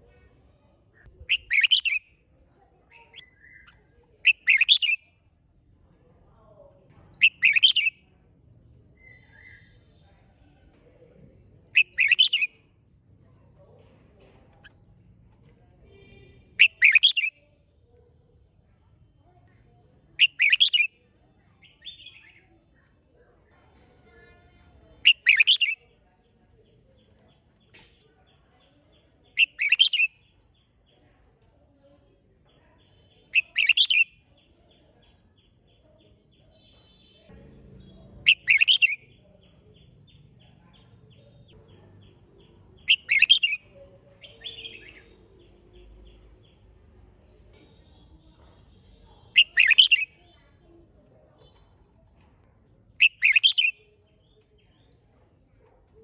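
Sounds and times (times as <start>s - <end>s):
bulbul singing short phrases: 1.0s - 2.0s, 3.1s - 5.0s, 6.9s - 8.0s, 42.9s - 43.6s, 49.3s - 50.3s, 52.9s - 54.9s.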